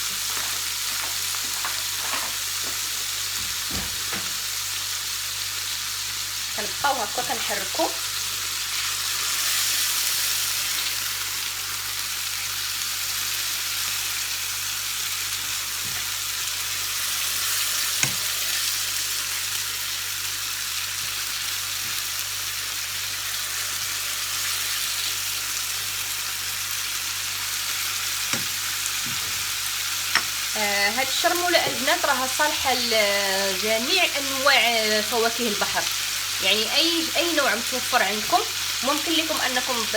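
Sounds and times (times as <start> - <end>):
seafood sizzling in a frying pan: 0.0 - 39.9
knocks against the pan: 3.7 - 4.4.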